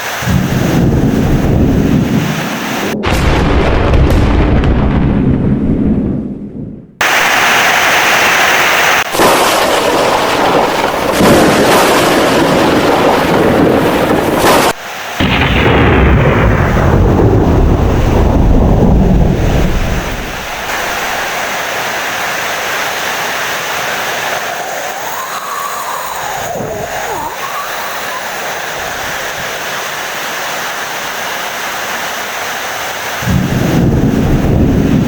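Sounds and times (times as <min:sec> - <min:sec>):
heavy rain: 0:00.0 - 0:03.0, 0:07.0 - 0:35.0
low rumble of thunder: 0:00.2 - 0:07.0, 0:09.2 - 0:14.4, 0:15.2 - 0:21.2, 0:33.2 - 0:35.0.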